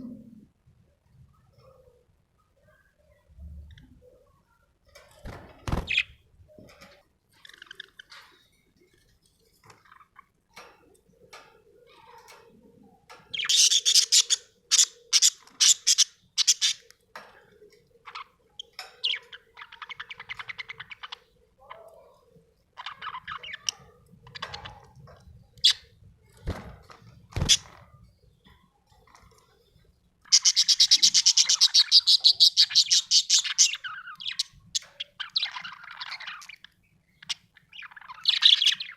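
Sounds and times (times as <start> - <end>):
budgerigar chirping: 13.4 - 16.8, 30.3 - 36.6.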